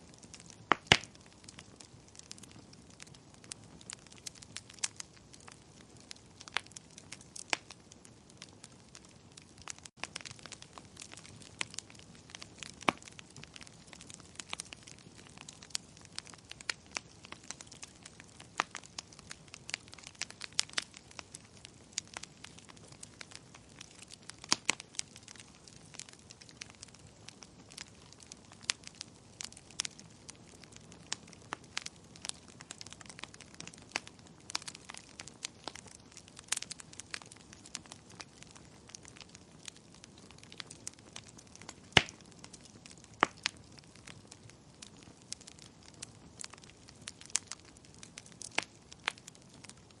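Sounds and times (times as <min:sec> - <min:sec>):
wood fire crackling: 0:00.0 - 0:50.0.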